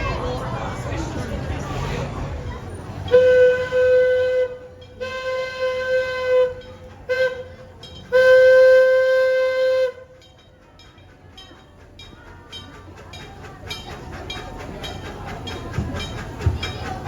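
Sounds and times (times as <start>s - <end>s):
steam whistle blasts: 3.1s - 7.5s, 8.1s - 10.1s.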